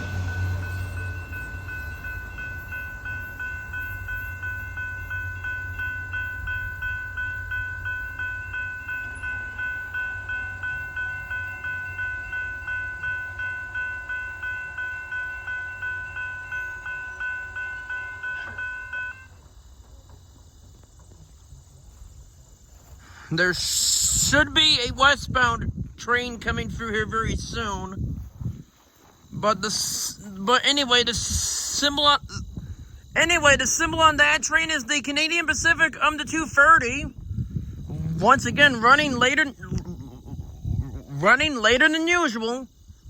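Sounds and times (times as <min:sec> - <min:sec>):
freight train rumbling: 0:00.0 - 0:18.6
crossing warning bell ringing: 0:00.0 - 0:19.4.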